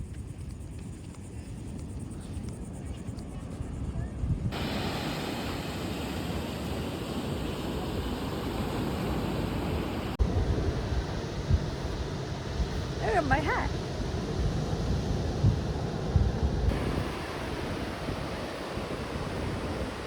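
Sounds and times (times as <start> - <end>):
wind on microphone: 0.0 - 20.0
ocean surf rushing: 4.5 - 20.0.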